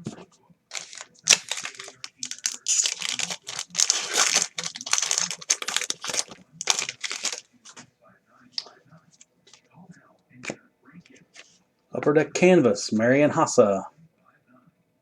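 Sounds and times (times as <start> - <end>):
wrapper rustling and crinkling: 0.7 - 7.8
wrapper tearing: 0.7 - 7.8.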